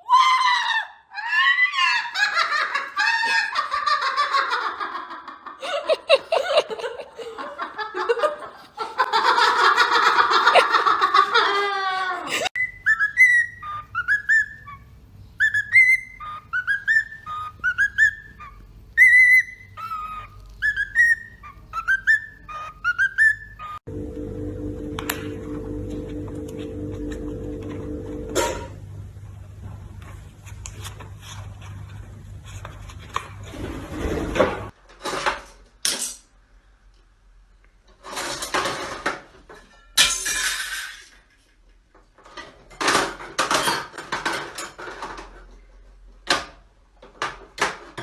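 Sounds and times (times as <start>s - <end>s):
parrot whistling notes: 12.6s - 14.8s, 15.4s - 23.8s
parrot chattering: 12.6s - 23.8s.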